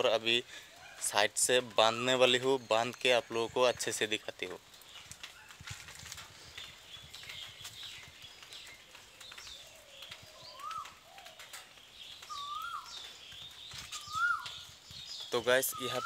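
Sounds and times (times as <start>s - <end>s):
light taps and rustles: 4.8s - 15.4s
faint high bird chirps: 12.1s - 16.0s
bird whistled notes: 12.3s - 13.0s, 13.9s - 14.6s.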